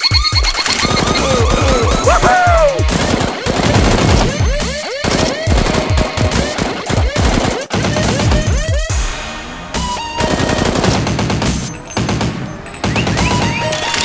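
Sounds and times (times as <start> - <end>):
background music: 0.0 - 14.0
rapid automatic gunfire: 2.9 - 8.9, 9.9 - 11.6.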